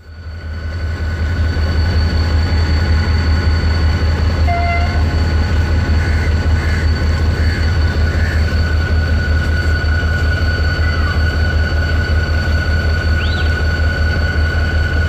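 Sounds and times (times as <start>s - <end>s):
brief tone: 0.0s - 6.4s, 12.9s - 14.3s
high whine: 0.0s - 15.0s
train rumbling past: 0.0s - 15.0s.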